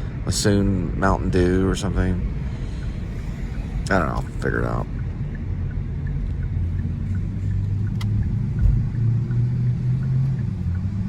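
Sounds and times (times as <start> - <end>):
car engine and road rumble: 0.0 - 11.0
low thump: 8.2 - 9.0.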